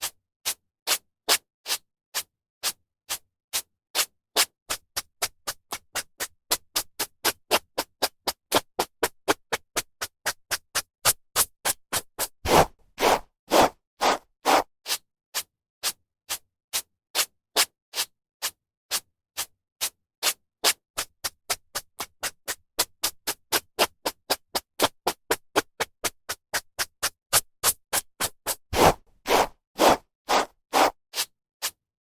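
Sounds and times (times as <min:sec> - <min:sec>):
brush swishing through hair: 0:28.8 - 0:31.3.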